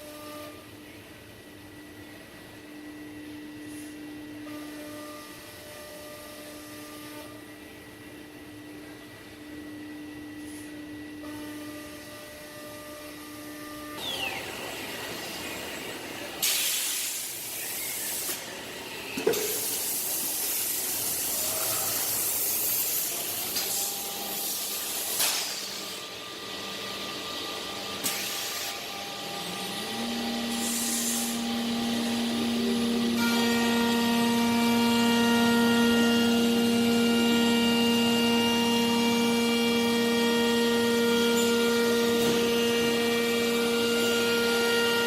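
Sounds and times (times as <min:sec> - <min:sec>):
cnc router whine: 0:00.0 - 0:45.0
loud hissing noise: 0:14.2 - 0:26.1, 0:30.5 - 0:32.4.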